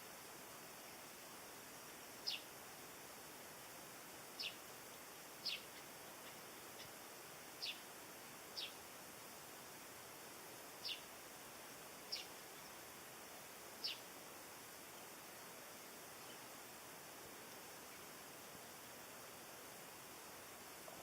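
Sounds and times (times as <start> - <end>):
faint steady hiss: 0.0 - 21.0
bird high downward calls: 2.2 - 2.5, 4.4 - 4.6, 5.4 - 7.0, 7.6 - 7.9, 8.6 - 8.8, 10.8 - 11.1, 13.8 - 14.1.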